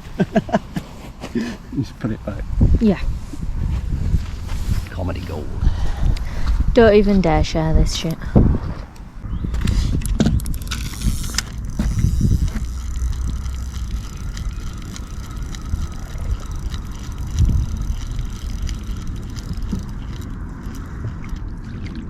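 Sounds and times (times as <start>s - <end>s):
wind rumbling on microphone: 0.0s - 22.0s
fishing reel ticking: 9.6s - 21.0s.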